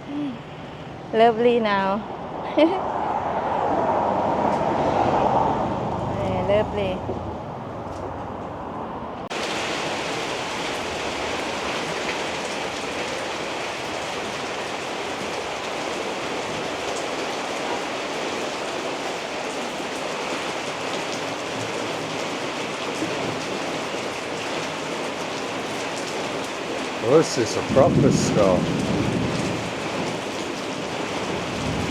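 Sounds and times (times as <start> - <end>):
heavy rain pouring: 9.2 - 31.9.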